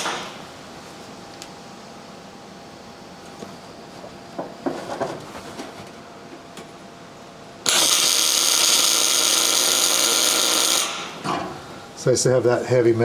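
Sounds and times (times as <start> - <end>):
welder running: 0.0 - 1.5, 7.6 - 12.2.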